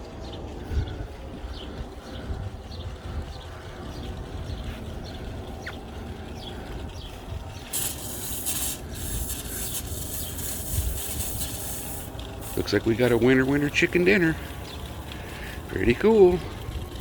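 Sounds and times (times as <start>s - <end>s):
garden sprinkler spraying water: 4.0s - 17.0s.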